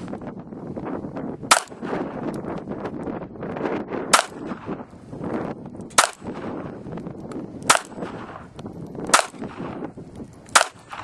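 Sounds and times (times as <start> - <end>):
pistol shots: 1.5 - 2.2, 4.1 - 4.8, 5.9 - 6.7, 7.6 - 9.9, 10.5 - 11.0.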